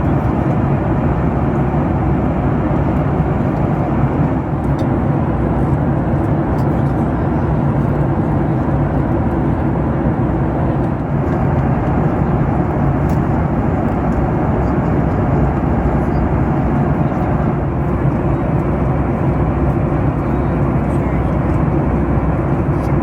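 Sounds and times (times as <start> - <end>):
airliner cabin roar: 0.0 - 23.0
low hum: 10.2 - 22.8.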